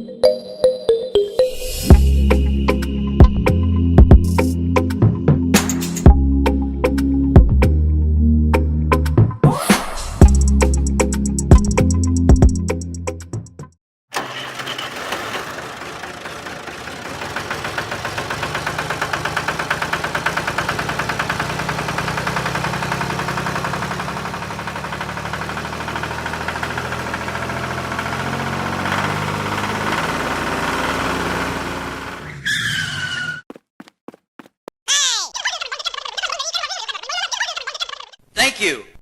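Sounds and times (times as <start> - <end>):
small engine running: 14.1 - 32.3.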